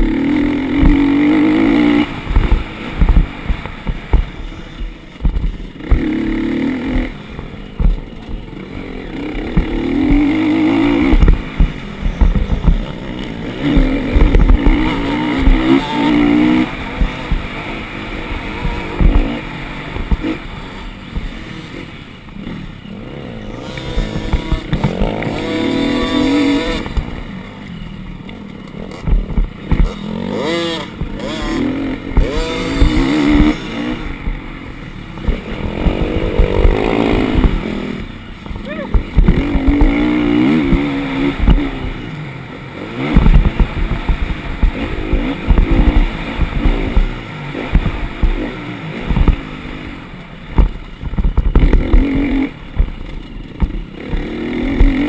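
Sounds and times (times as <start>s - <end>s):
dirt bike engine revving: 0.0s - 55.0s
low thumps: 0.7s - 8.6s, 9.4s - 20.5s, 23.6s - 27.3s, 29.0s - 30.0s, 30.8s - 42.0s, 43.0s - 48.4s, 49.0s - 49.5s.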